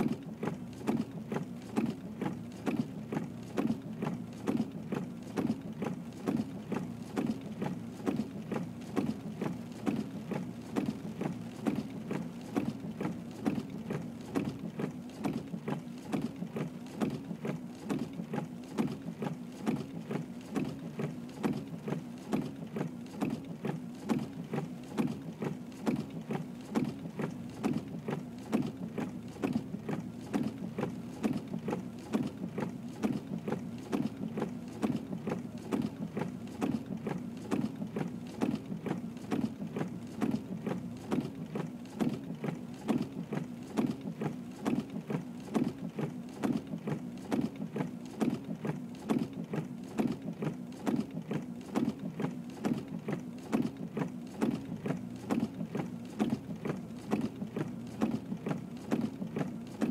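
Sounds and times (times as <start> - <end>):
vehicle engine with rhythmic pulse: 0.0 - 59.9.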